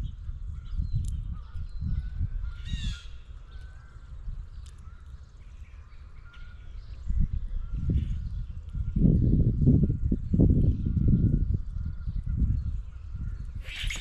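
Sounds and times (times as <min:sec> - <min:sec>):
small birds chirping: 0:00.0 - 0:14.0
blue jay harsh call: 0:13.6 - 0:14.0.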